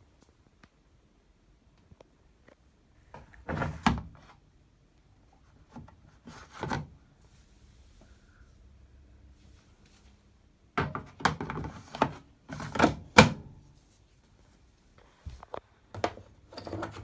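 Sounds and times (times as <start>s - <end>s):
washing machine drawer sliding and knocking: 3.4s - 4.2s, 10.8s - 13.5s, 16.0s - 17.0s.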